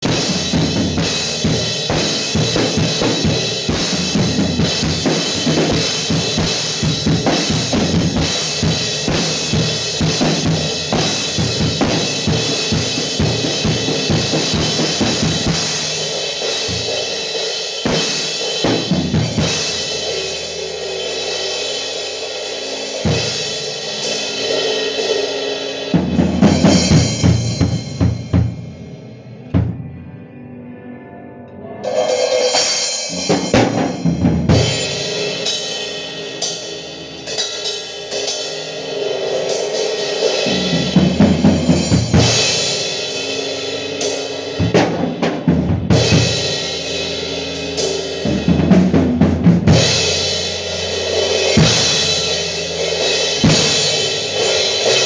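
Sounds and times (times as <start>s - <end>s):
snare drum: 17.8s - 19.7s.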